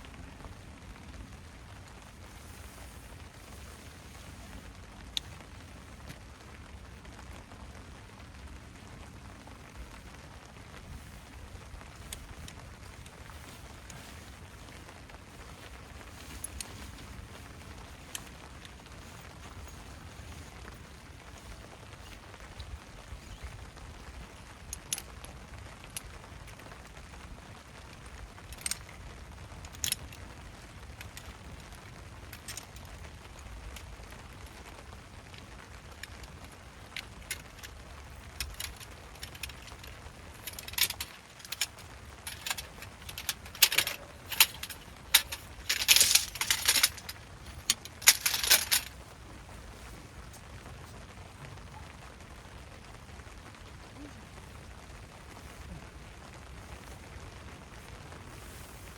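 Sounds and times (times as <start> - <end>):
metal camping gear clinking: 9.6 - 27.2, 27.8 - 51.0.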